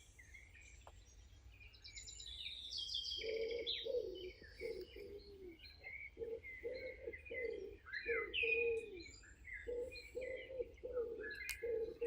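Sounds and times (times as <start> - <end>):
birds calling low notes: 2.9 - 12.0.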